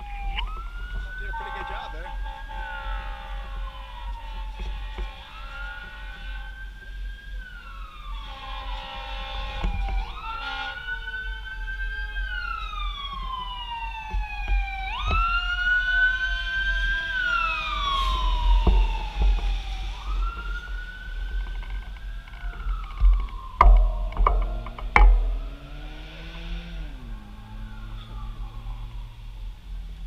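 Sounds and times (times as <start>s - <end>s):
emergency siren wailing: 0.0s - 30.0s
low rumble: 18.1s - 30.0s.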